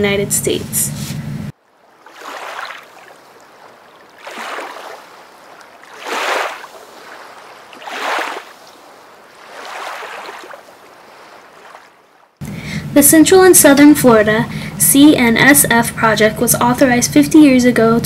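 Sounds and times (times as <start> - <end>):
water washing in swells: 1.6 - 12.4.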